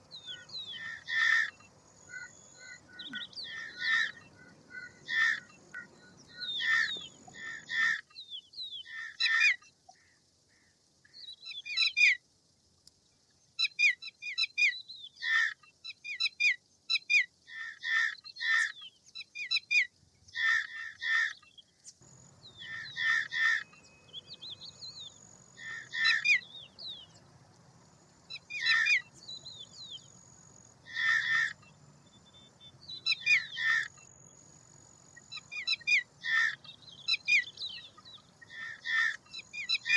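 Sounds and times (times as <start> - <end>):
bird rasping chattering calls: 0.0 - 8.0, 22.5 - 27.2, 28.3 - 31.8, 32.9 - 34.1, 35.2 - 39.9.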